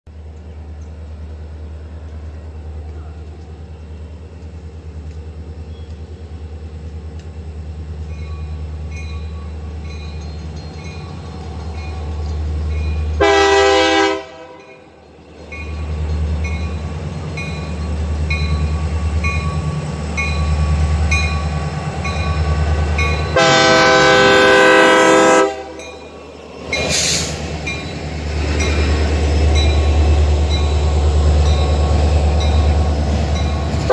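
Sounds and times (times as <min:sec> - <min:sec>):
locomotive engine rumbling: 0:00.1 - 0:33.9
train air horn: 0:13.2 - 0:14.8, 0:23.3 - 0:25.8.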